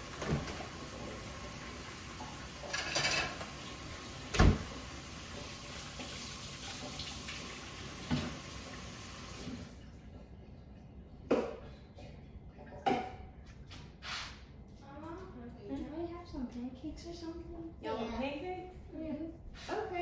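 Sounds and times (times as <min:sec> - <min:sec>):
running water: 0:00.0 - 0:09.8.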